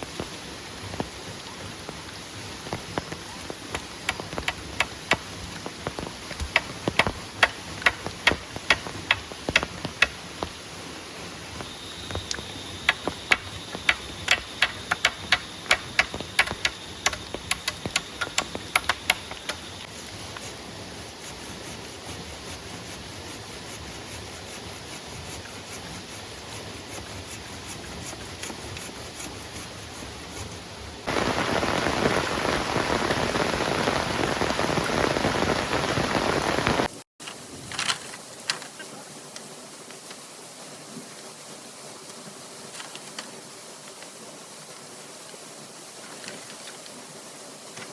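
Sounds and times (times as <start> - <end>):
rain falling: 0.0 - 37.0
sharp taps: 12.2 - 19.6.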